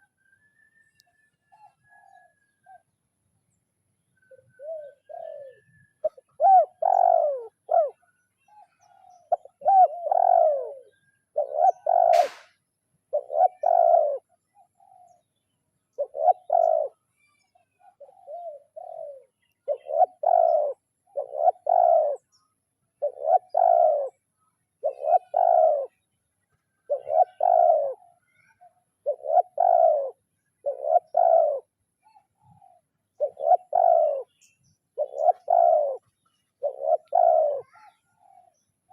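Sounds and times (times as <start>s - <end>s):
dove cooing: 1.5s - 2.9s, 4.2s - 12.5s, 13.1s - 15.3s, 15.9s - 26.1s, 26.8s - 38.9s
sharp click: 12.1s - 12.5s.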